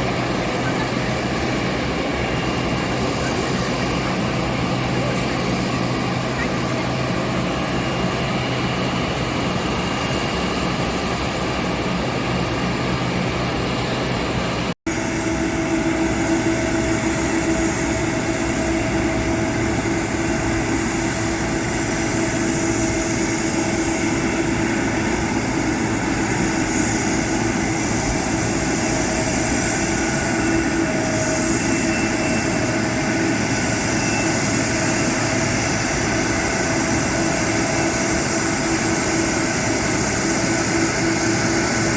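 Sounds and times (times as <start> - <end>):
jet engines running: 0.0 - 41.9.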